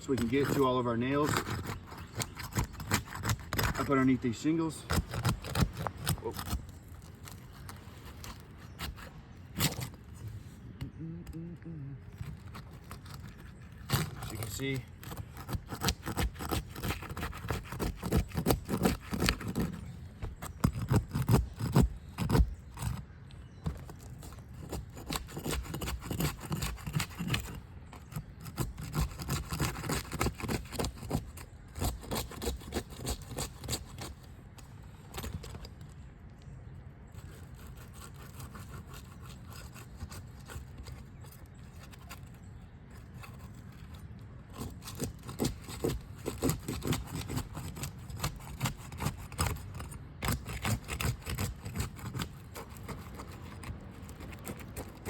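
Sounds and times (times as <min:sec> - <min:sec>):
roof shingles scraping and crackling: 0:00.0 - 0:10.2, 0:12.0 - 0:36.2, 0:37.1 - 0:55.0.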